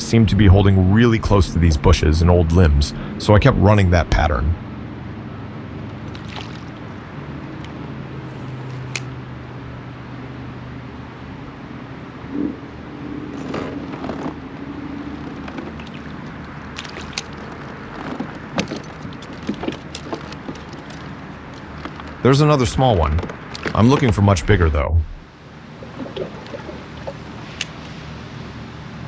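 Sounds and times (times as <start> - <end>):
cars passing: 0.0 - 17.1.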